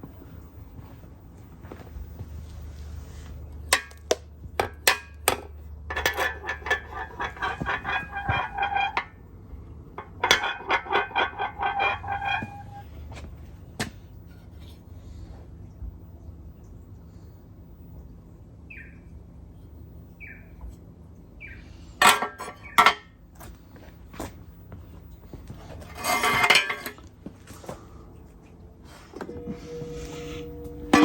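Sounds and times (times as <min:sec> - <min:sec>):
steady low hum: 0:00.0 - 0:31.0
hammer striking ringing steel: 0:29.2 - 0:31.0.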